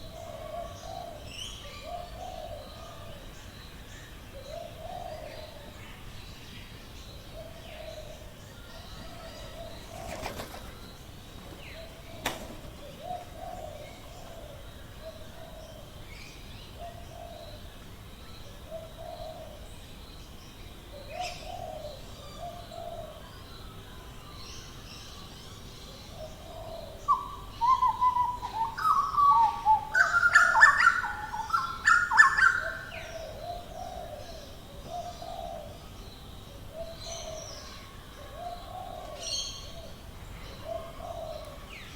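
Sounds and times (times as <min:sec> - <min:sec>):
bird cooing: 0:00.0 - 0:03.2, 0:04.3 - 0:05.8, 0:07.3 - 0:10.9, 0:11.6 - 0:16.0, 0:18.7 - 0:19.7, 0:21.0 - 0:23.3, 0:26.1 - 0:36.0, 0:36.7 - 0:41.9.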